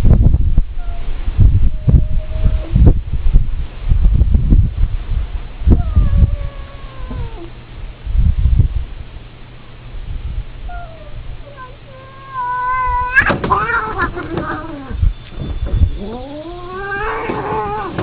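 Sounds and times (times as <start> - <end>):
low thumps and rumble: 0.0 - 9.2, 12.8 - 18.0
cat yowling: 1.7 - 2.8, 5.8 - 7.6, 10.7 - 15.0, 16.0 - 18.0.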